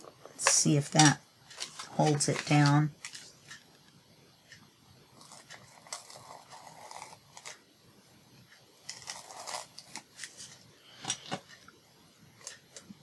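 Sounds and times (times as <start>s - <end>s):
scratchy rubbing on paper: 5.2s - 7.5s.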